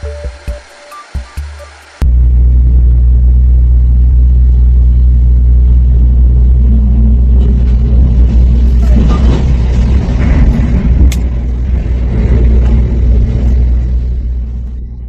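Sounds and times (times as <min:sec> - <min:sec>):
music: 0:00.0 - 0:02.0
loud low rumble: 0:02.0 - 0:15.0.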